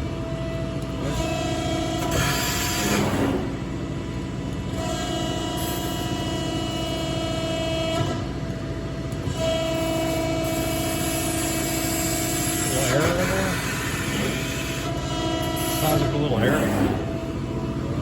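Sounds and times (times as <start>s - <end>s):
hydraulic press whine: 0.0s - 18.0s.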